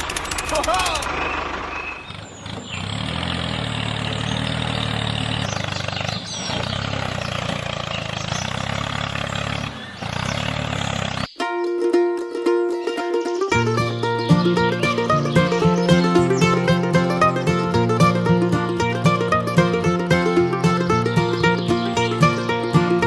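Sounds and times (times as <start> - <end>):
plucked-string background music: 11.4 - 23.0.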